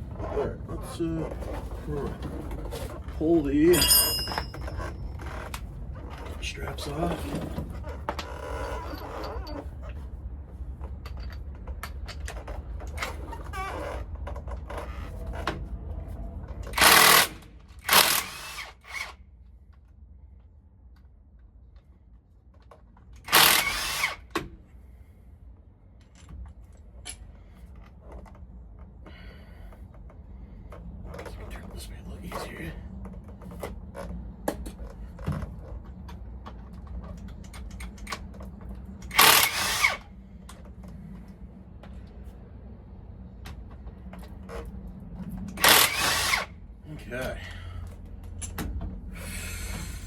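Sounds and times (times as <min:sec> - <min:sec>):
low steady hum: 0:00.0 - 0:50.0
hand tools knocking on metal: 0:03.7 - 0:04.9
power tool bursts: 0:16.8 - 0:19.1, 0:23.3 - 0:24.3, 0:39.1 - 0:40.1, 0:45.6 - 0:46.5.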